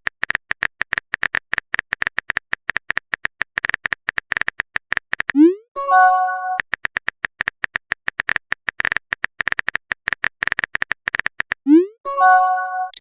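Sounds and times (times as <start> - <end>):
rapid keyboard tapping clicks: 0.0 - 5.5, 6.6 - 11.7
incoming message chime: 5.4 - 6.6.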